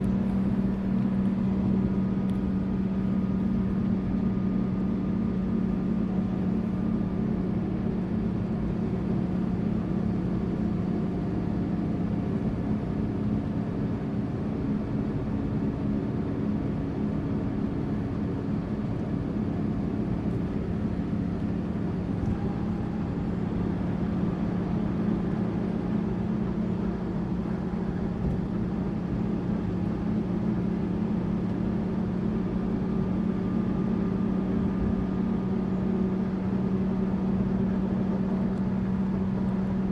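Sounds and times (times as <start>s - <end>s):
bus engine and road drone: 0.0s - 39.9s.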